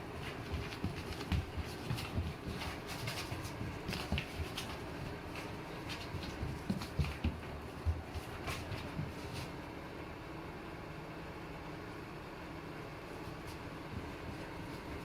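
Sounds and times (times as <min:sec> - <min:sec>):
pet's feet running on floor: 0:00.0 - 0:09.7, 0:13.2 - 0:15.0.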